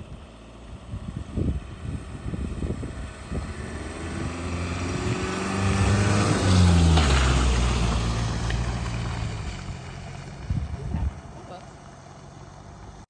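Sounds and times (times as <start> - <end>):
car engine revving hard: 2.7 - 9.4.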